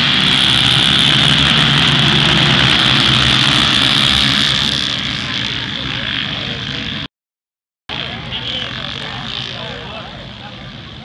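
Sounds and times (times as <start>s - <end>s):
motocross bikes revving: 0.0s - 7.1s.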